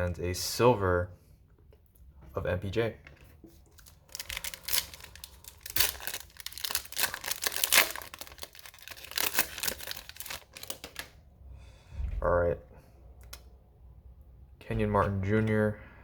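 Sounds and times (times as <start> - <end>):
foil wrapper tearing and crinkling: 3.7 - 11.2.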